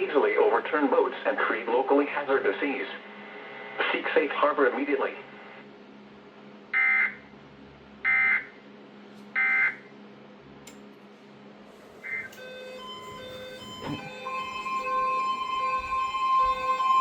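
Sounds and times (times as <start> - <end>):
steady high tone: 11.7 - 17.0
music with steady beat: 13.0 - 17.0.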